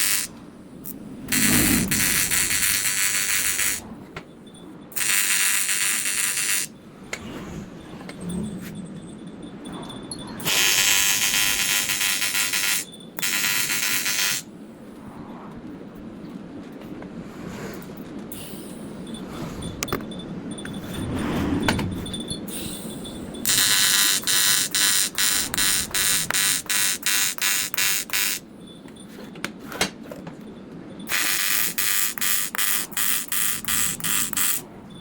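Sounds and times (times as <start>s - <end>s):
welding arc buzzing: 0.0s - 3.8s, 5.0s - 6.7s, 10.4s - 14.5s, 23.4s - 28.4s, 31.1s - 34.6s.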